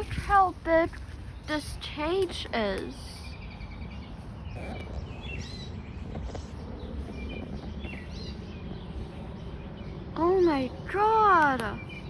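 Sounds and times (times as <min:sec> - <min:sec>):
canaries chirping: 0:02.8 - 0:12.0.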